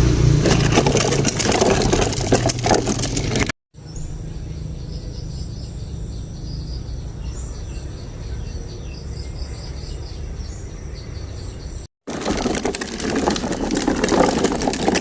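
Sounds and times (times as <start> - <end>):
insects chirping: 3.9 - 11.4.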